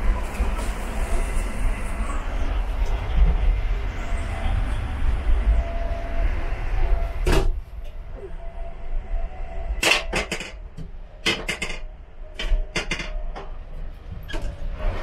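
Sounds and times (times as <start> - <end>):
low rumble of train running: 0.0 - 15.0
sharp clattering knocks: 11.2 - 13.5.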